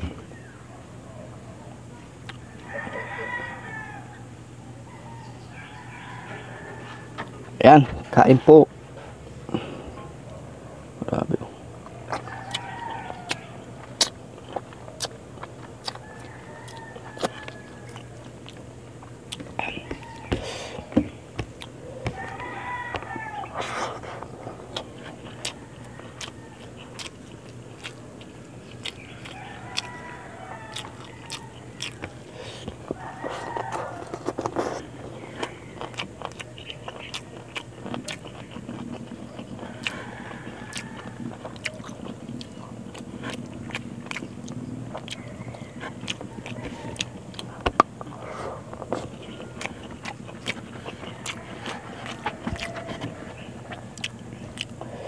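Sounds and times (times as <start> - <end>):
low steady hum: 0.0 - 55.0
wet chewing mouth clicks: 11.8 - 22.4, 23.6 - 55.0.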